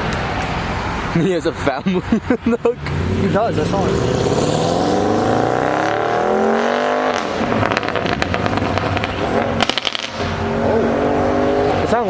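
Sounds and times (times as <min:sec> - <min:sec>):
car engine revving: 0:02.0 - 0:12.0
exhaust pops and crackles: 0:07.2 - 0:10.4.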